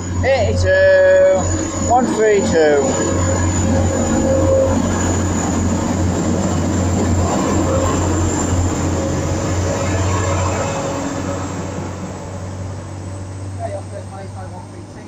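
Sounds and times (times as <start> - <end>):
thin high whine: 0.0 - 14.8
train engine and wheels running: 0.0 - 15.0.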